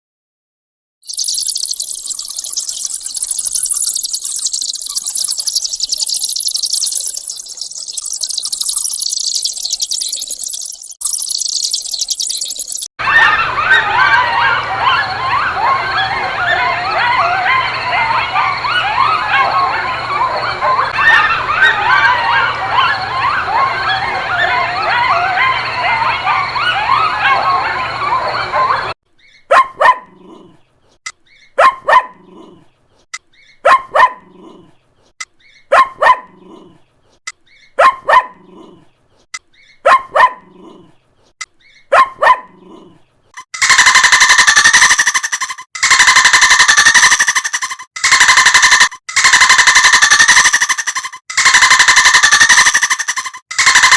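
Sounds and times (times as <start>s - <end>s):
bats squeaking and chattering: 1.0s - 12.9s, 43.4s - 53.9s
dog barking: 13.1s - 15.8s, 16.4s - 23.0s, 24.4s - 28.9s, 29.5s - 30.6s, 31.6s - 32.5s, 33.6s - 34.7s, 35.7s - 36.8s, 37.8s - 38.8s, 39.8s - 40.9s, 41.9s - 43.0s.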